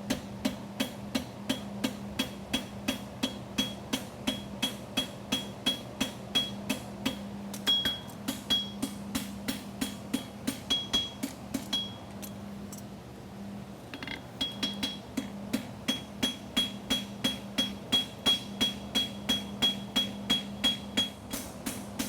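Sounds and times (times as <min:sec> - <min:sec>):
steady low hum: 0:00.0 - 0:22.0
hammer ringing on horseshoe: 0:02.2 - 0:06.6, 0:07.7 - 0:09.0, 0:09.9 - 0:12.0, 0:14.0 - 0:15.0, 0:15.9 - 0:21.5.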